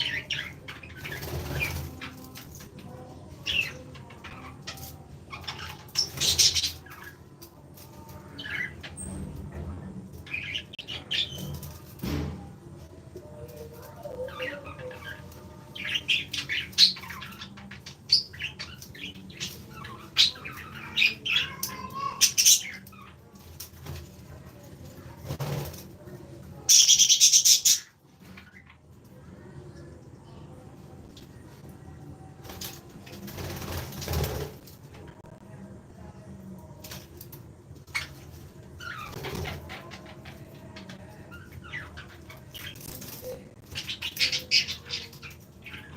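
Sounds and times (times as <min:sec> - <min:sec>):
birds chirping and chattering: 0:00.0 - 0:45.9
parrots squawking and chirping: 0:37.9 - 0:43.0.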